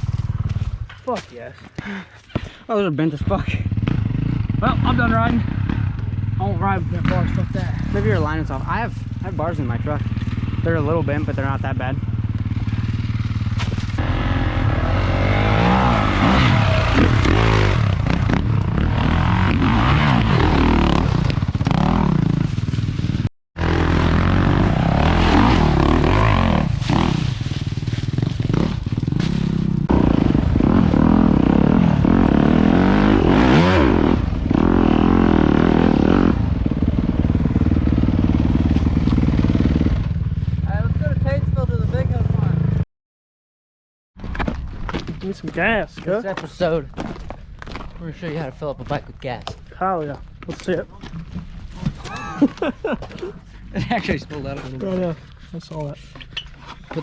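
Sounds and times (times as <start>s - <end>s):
dirt bike engine revving: 3.2s - 42.8s.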